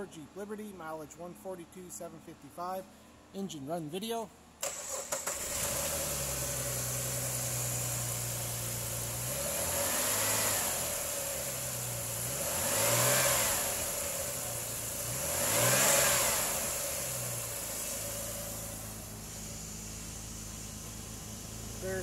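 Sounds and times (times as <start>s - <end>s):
car engine idling and revving: 4.6s - 22.0s.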